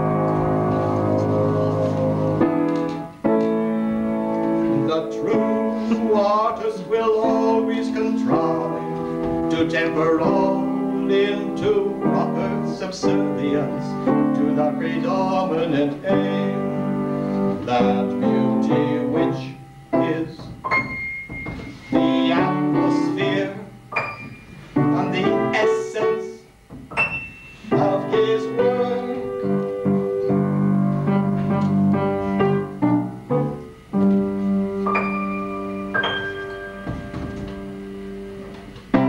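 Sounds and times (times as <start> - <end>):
person singing: 0.0 - 3.1, 4.6 - 20.6, 21.9 - 23.8, 24.8 - 26.5, 27.6 - 30.5
piano music: 0.0 - 39.0.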